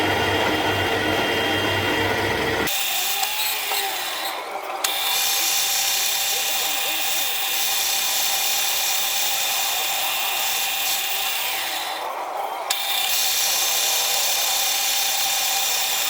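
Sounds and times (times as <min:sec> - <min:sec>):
metal lathe whine: 0:00.0 - 0:16.0
cutting tool hiss: 0:02.7 - 0:12.0, 0:12.7 - 0:16.0.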